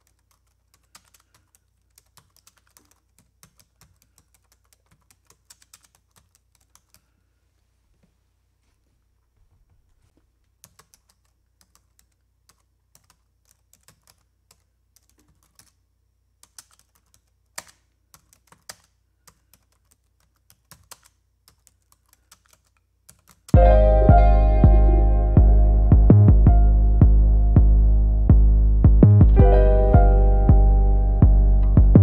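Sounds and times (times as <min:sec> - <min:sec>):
music: 0:23.6 - 0:32.0.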